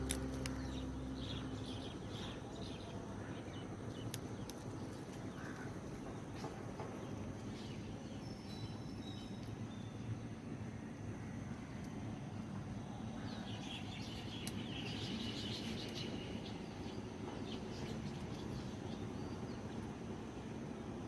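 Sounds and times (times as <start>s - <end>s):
low background rumble: 0.0s - 6.1s
small birds chirping: 0.0s - 10.3s, 13.2s - 20.0s.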